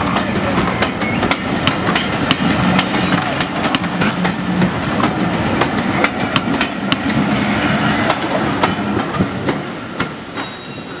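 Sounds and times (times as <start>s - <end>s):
train wheels clanking over rail joints: 0.0s - 7.3s.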